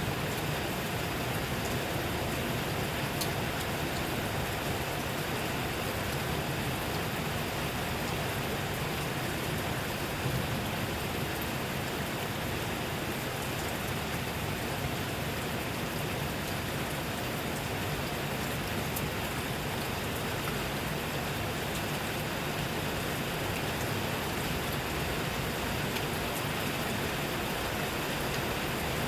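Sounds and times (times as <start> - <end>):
steady rain falling: 0.0 - 29.0
rain drop ticks: 3.0 - 4.2, 25.8 - 29.0.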